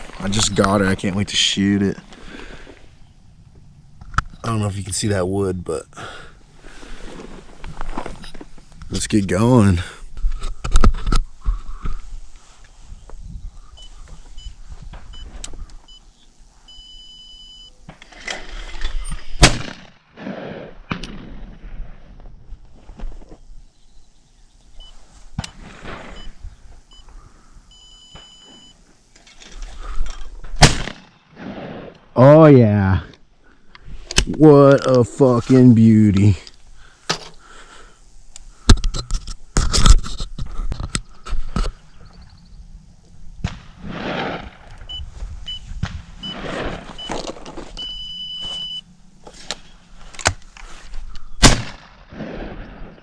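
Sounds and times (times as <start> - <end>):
long electronic beep: 16.7 - 17.7, 27.7 - 28.8, 44.9 - 47.2, 47.8 - 48.9
shotgun shots: 19.4 - 21.8, 30.6 - 31.9, 43.4 - 44.7, 51.4 - 53.0
short electronic beeps: 27.7 - 28.8, 44.9 - 46.4, 47.8 - 48.9.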